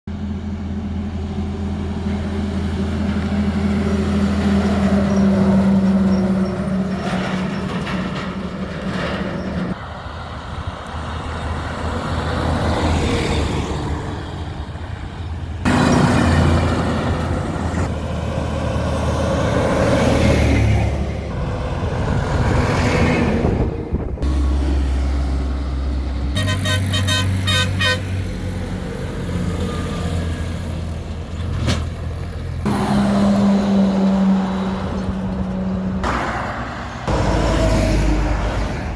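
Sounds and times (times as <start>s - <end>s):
truck engines on highway: 0.1s - 38.9s
horn honking repeatedly: 26.3s - 28.4s.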